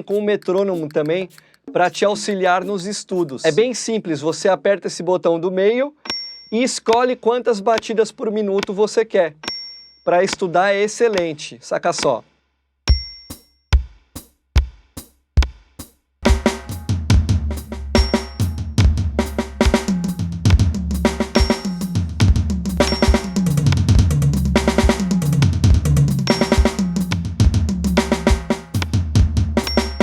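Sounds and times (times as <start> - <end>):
electronic drum beat: 0.0 - 3.8, 12.9 - 30.0
metronome clicking: 22.8 - 23.9, 26.2 - 27.2, 29.6 - 30.0.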